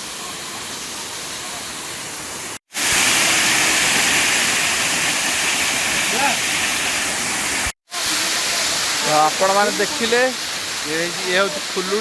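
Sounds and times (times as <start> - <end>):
waterfall rushing water: 0.0 - 12.0.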